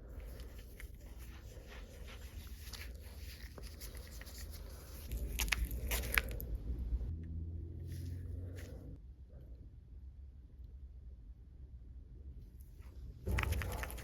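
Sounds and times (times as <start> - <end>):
wet scraping and squishing paste: 0.0 - 6.6, 12.8 - 14.0.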